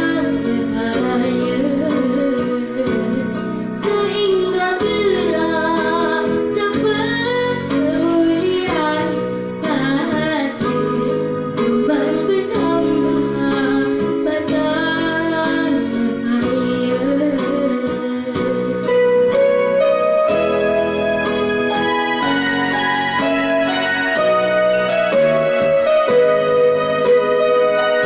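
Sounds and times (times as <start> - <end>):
girl singing: 0.0 - 19.6
instrumental accompaniment: 0.0 - 28.0.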